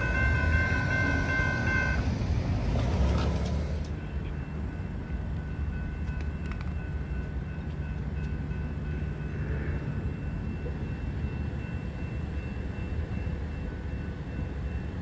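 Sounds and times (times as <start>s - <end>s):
high ringing tones: 0.0s - 2.3s
train rumble: 0.0s - 15.0s.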